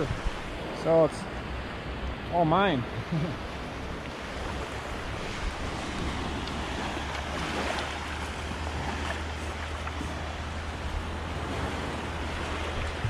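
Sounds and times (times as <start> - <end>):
wind rumble on microphone: 0.0 - 0.8, 3.6 - 13.0
surf washing on sandy beach: 0.0 - 13.0.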